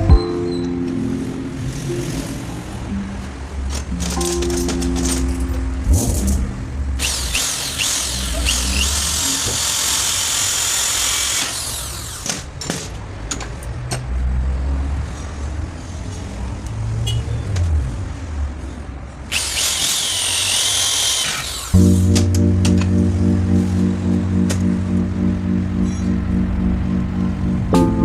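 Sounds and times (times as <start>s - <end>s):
low rumbling: 21.8s - 28.0s.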